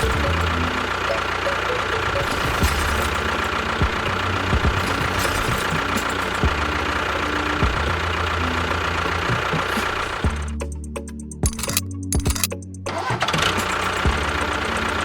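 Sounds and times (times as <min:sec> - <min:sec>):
engine idling: 0:00.0 - 0:15.0
sharp clicks: 0:11.4 - 0:12.6.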